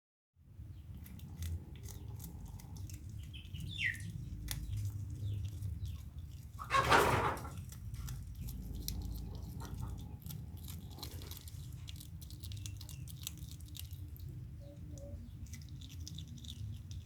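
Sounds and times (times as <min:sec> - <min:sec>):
bird chirp: 0:01.8 - 0:06.8, 0:14.3 - 0:16.9.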